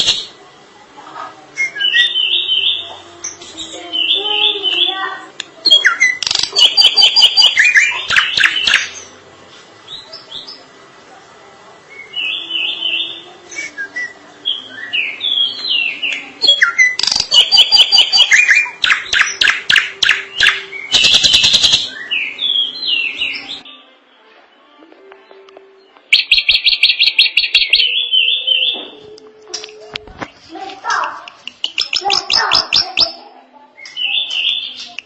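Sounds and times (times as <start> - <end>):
bird whistling and chattering: 1.6 - 5.0, 5.6 - 9.1, 12.0 - 23.6, 26.1 - 28.8, 31.4 - 35.0.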